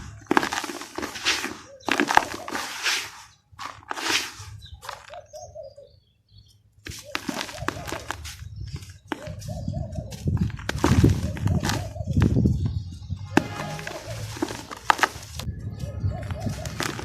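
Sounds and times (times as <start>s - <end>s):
cement chunks crunching: 0.0s - 5.2s, 6.8s - 9.4s, 10.2s - 12.4s, 13.4s - 15.5s, 16.4s - 17.0s.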